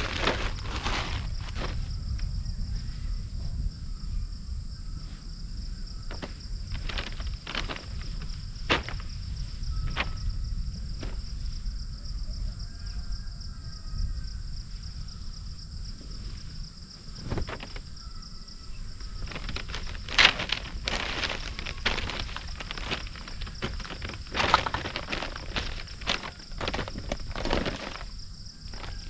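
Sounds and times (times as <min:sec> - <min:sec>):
knocks or crunches: 0:00.0 - 0:01.9, 0:06.1 - 0:09.2, 0:19.2 - 0:29.0
high insect chorus: 0:00.0 - 0:29.0.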